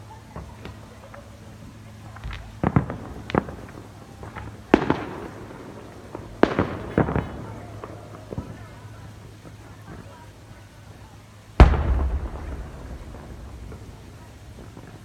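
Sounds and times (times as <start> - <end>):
fireworks bangs with echo: 2.3 - 10.1, 11.6 - 15.0.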